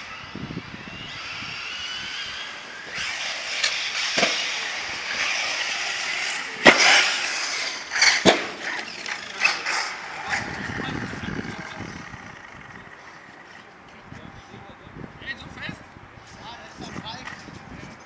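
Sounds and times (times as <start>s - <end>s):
electric rc car motor whining: 0.0s - 13.7s.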